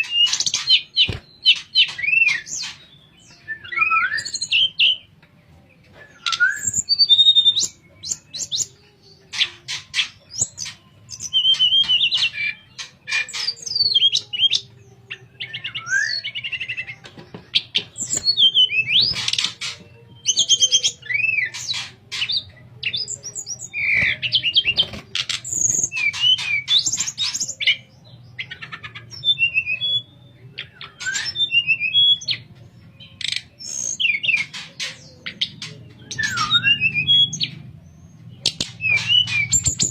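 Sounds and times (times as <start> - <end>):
songbird whistling and trilling: 0.0 - 5.1, 5.9 - 37.6, 38.3 - 39.9.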